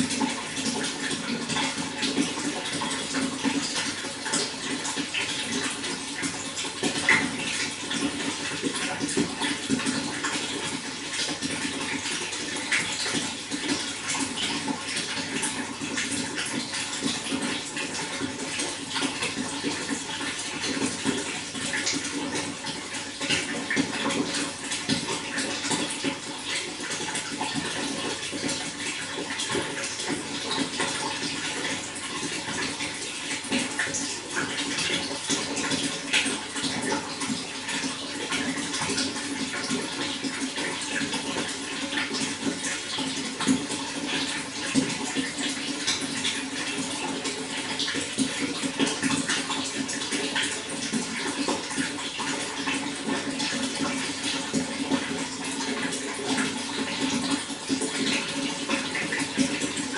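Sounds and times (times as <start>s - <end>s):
running water splashing: 0.0s - 59.9s.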